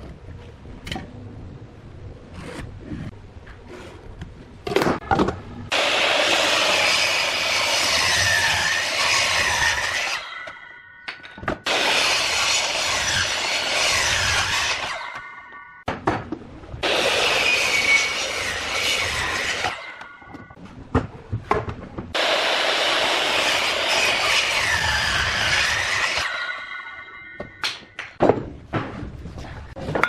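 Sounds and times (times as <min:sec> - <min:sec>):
power tool cutting wood: 0:05.7 - 0:10.3, 0:11.7 - 0:15.1, 0:16.8 - 0:19.8, 0:22.2 - 0:26.5.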